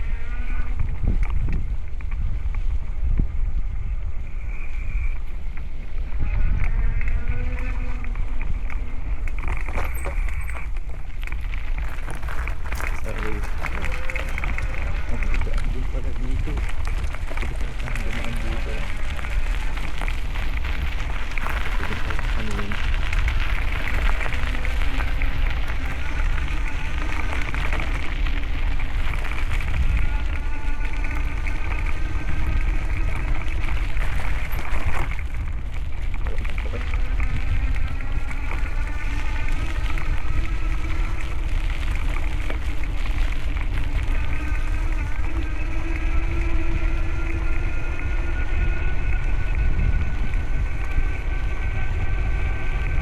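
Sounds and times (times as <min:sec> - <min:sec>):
wind buffeting microphone: 0:00.0 - 0:53.0
steady hum drifting in pitch: 0:12.2 - 0:53.0.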